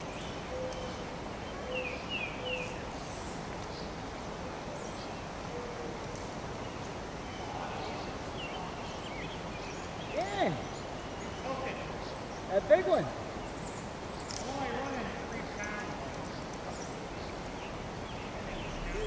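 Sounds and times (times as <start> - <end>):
bird chirping: 0.0 - 2.9, 15.4 - 19.0
outdoor background noise: 0.0 - 19.0.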